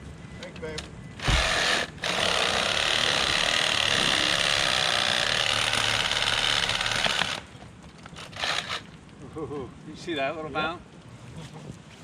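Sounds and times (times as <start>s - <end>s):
power saw cutting log: 1.2s - 7.5s, 8.2s - 8.9s.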